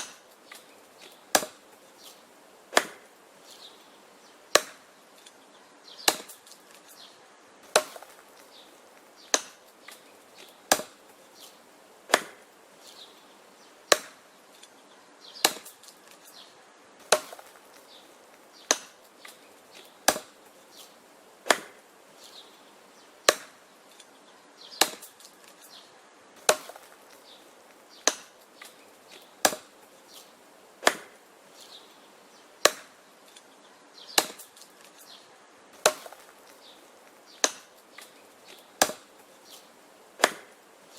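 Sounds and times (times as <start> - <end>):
axe striking wood: 0.0 - 0.6, 1.3 - 1.6, 2.7 - 3.1, 4.5 - 4.9, 6.0 - 6.6, 7.6 - 8.5, 9.2 - 11.0, 12.1 - 12.5, 13.9 - 14.2, 15.4 - 16.2, 17.0 - 17.8, 18.6 - 20.4, 21.4 - 21.8, 23.2 - 23.6, 24.8 - 25.6, 26.4 - 27.2, 28.0 - 29.8, 30.8 - 31.2, 32.6 - 33.0, 34.1 - 34.8, 35.8 - 36.6, 37.3 - 39.1, 40.2 - 40.6
wood knocking and cracking: 7.7 - 11.0, 15.4 - 16.3, 17.0 - 20.4, 21.4 - 21.8, 24.8 - 25.7, 26.4 - 27.2, 28.0 - 29.8, 30.8 - 31.2, 35.8 - 39.2, 40.2 - 40.6.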